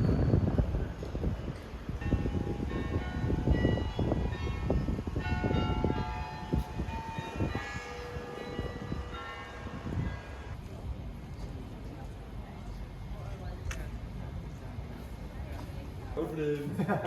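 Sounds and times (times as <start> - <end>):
low street rumble: 0.0 - 17.0
church bells ringing: 1.9 - 10.6.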